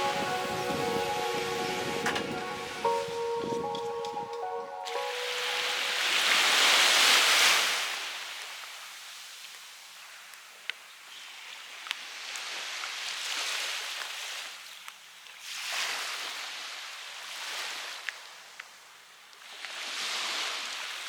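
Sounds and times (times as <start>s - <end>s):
waves washing on shore: 4.9s - 10.0s, 12.0s - 14.7s, 19.4s - 21.0s.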